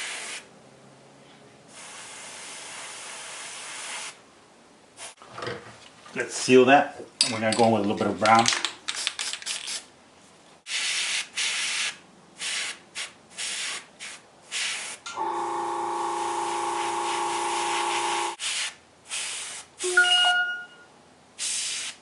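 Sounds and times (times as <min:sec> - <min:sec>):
airbrush spraying hiss: 0:16.2 - 0:19.9, 0:21.4 - 0:22.0
brief high tone: 0:19.8 - 0:20.9.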